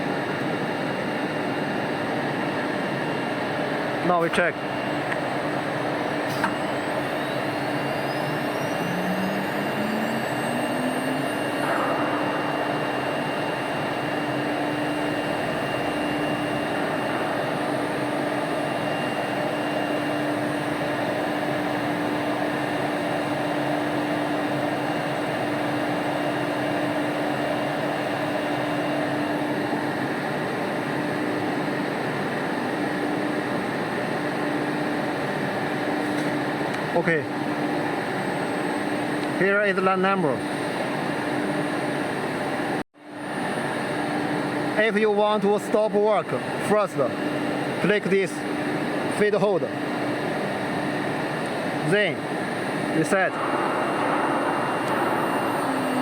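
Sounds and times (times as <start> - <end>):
router spindle whine: 4.7 - 24.7, 51.2 - 56.0
machine noise rush: 5.4 - 23.6, 51.2 - 56.0.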